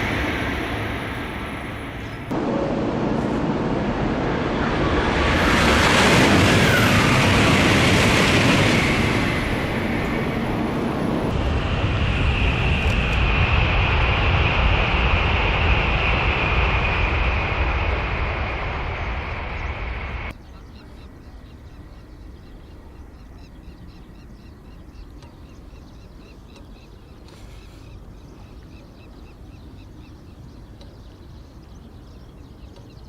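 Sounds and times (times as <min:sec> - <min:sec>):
high whine: 0:00.0 - 0:20.3
train passing at high speed: 0:00.0 - 0:20.4.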